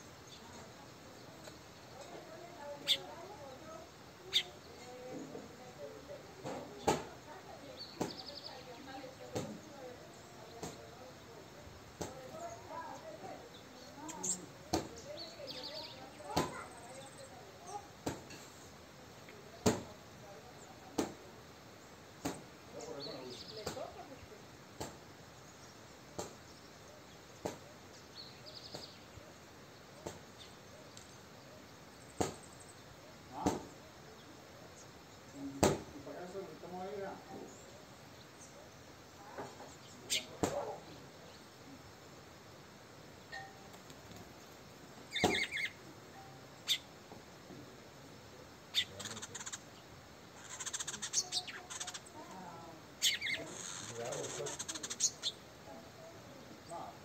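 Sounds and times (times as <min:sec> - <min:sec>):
small birds chirping: 0:00.0 - 0:57.0
bird trilling: 0:02.8 - 0:03.2, 0:04.3 - 0:04.6, 0:45.1 - 0:45.8, 0:46.6 - 0:46.9, 0:48.7 - 0:49.8, 0:50.4 - 0:52.2, 0:53.0 - 0:55.4
thump: 0:33.4 - 0:33.7.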